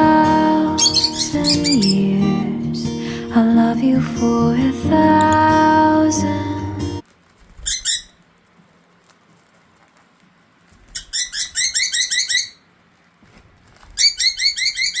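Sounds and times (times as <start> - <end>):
rapid high chirps: 0.7 - 2.2.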